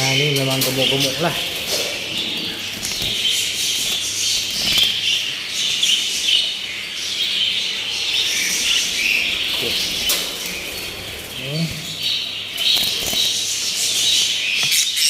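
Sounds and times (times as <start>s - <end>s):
budgerigars chattering and chirping: 0.0s - 15.0s
wings flapping: 0.9s - 5.2s, 12.5s - 13.8s.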